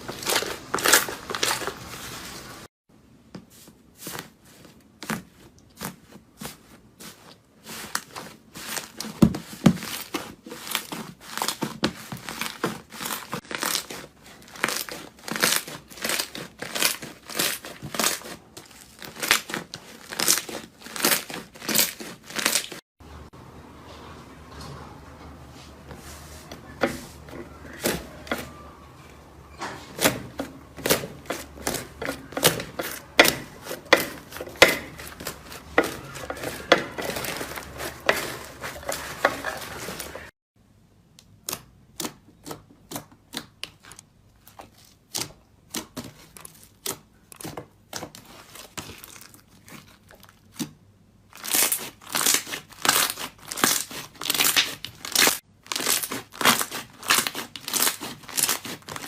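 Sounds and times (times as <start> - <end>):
slime crackling and popping: 7.8 - 22.8, 51.3 - 59.0.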